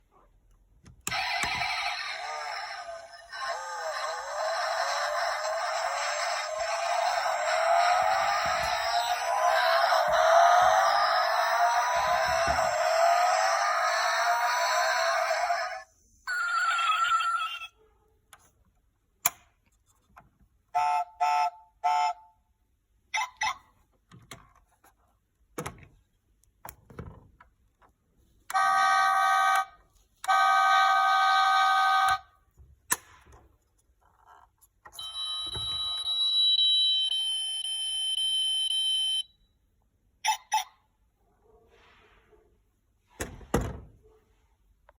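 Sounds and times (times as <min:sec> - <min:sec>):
toy electronic beeps and tones: 0:01.1 - 0:12.6, 0:35.0 - 0:39.3.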